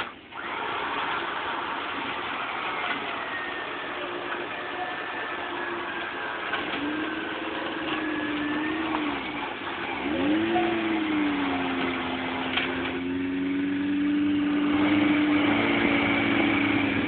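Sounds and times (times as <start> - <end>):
engine pulling under load: 0.0 - 17.0.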